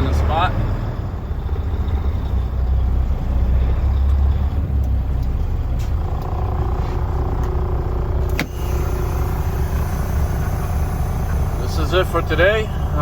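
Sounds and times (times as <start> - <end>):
truck engine low rumble: 0.0 - 13.0.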